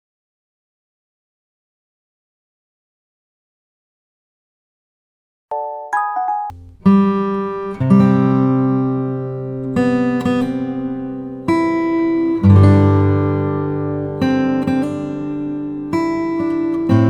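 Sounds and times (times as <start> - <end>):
acoustic guitar strumming chords: 5.5 - 17.0.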